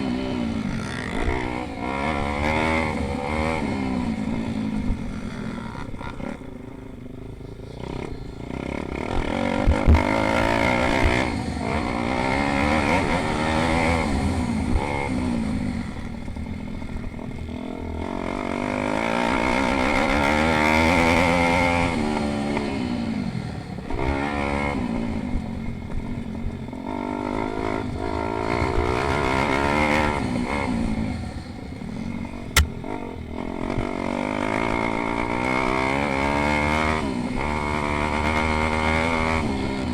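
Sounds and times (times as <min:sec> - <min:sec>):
pit bike engines racing: 0:00.0 - 0:39.9
low thumps: 0:32.5 - 0:32.9
sharp click: 0:32.6 - 0:32.8.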